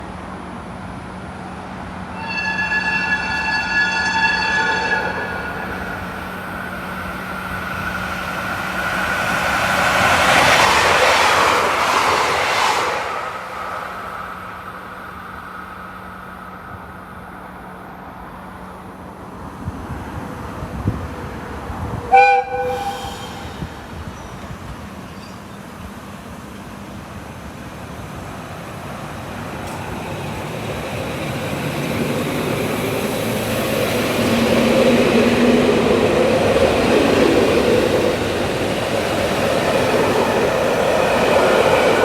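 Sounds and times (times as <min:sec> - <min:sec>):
train wheels rushing past: 0:02.0 - 0:16.9, 0:20.8 - 0:25.1, 0:28.9 - 0:42.0
train horn: 0:02.1 - 0:08.0, 0:22.0 - 0:23.9.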